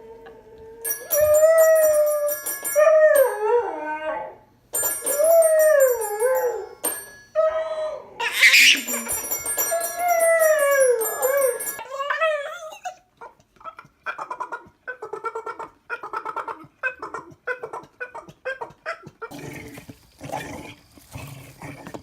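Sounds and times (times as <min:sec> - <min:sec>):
high ringing chime tones: 0:00.8 - 0:03.8, 0:04.8 - 0:07.5, 0:08.4 - 0:11.8
dog howling: 0:07.4 - 0:12.6.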